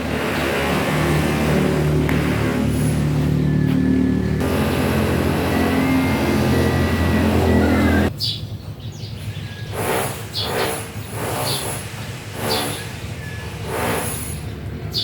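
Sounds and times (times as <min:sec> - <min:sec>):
motor running: 0:00.0 - 0:08.1
birds chirping: 0:01.8 - 0:15.0.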